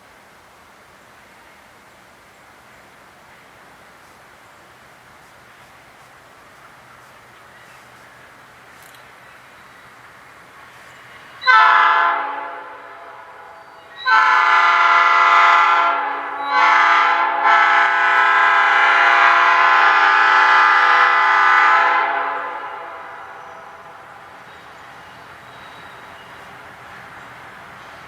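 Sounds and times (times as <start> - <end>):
locomotive air horn blasts: 11.4 - 23.8.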